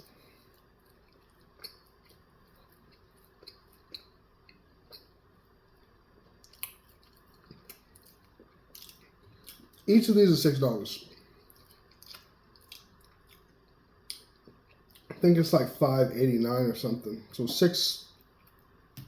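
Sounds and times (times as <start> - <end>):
person chewing food: 0.0 - 9.9, 11.1 - 15.2.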